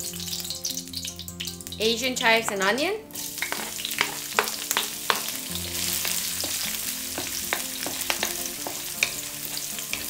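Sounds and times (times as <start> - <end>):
food sizzling in hot oil: 0.0 - 10.0
wooden spatula scraping pan: 3.4 - 10.0.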